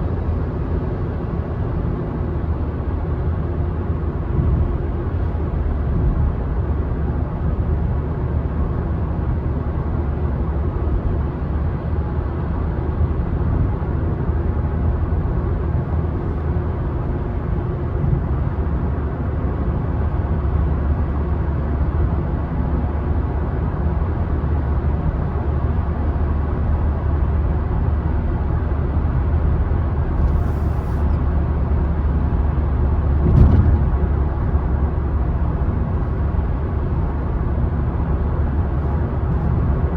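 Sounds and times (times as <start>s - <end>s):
car driving on road: 0.0s - 39.9s
brief knock: 33.2s - 34.0s.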